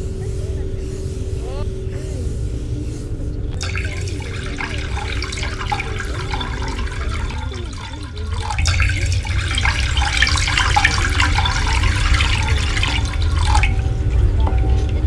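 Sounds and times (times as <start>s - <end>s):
water gurgling and splashing: 3.6s - 15.0s.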